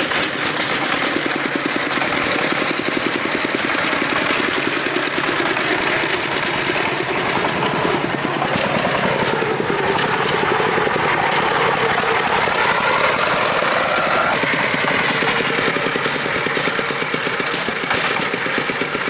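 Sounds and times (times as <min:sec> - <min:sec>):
truck engine chugging: 0:00.0 - 0:19.0.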